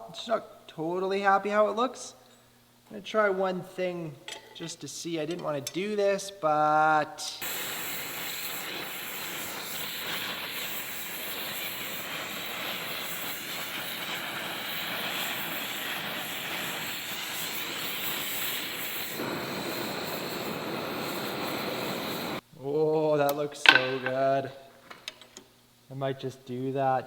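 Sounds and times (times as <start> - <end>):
gas forge burner roaring: 7.4 - 22.4.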